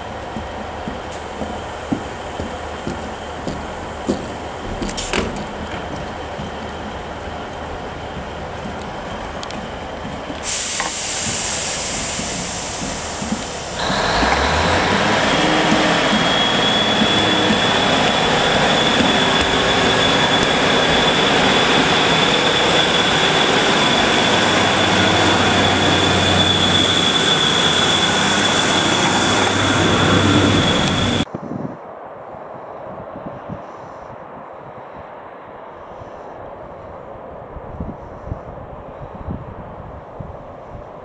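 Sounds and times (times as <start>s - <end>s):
diesel train engine accelerating: 0.0s - 31.3s
air hiss: 10.4s - 14.6s
high whine: 12.8s - 31.3s.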